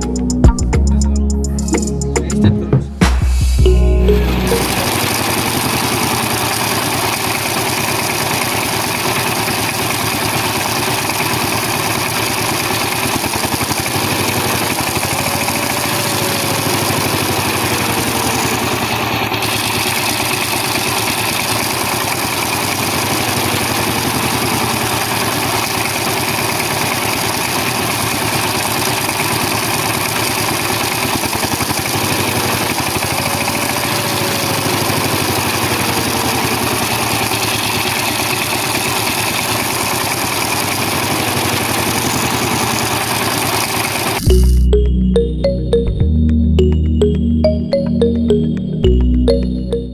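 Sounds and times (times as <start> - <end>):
small motor buzzing: 4.6 - 44.3.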